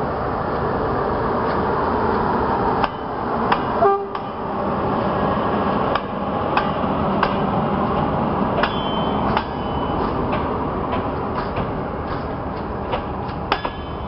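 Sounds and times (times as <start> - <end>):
train wheels rumbling on rails: 0.0 - 14.0
wheels clicking on rail joints: 5.9 - 14.0.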